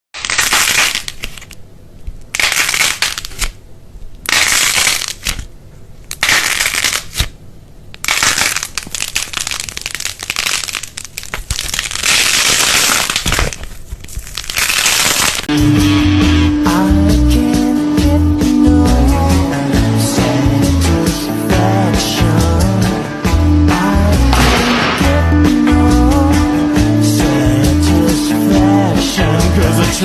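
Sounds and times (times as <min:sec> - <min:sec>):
crunching crushing strokes: 0:04.2 - 0:05.5, 0:08.0 - 0:16.7, 0:19.2 - 0:29.2.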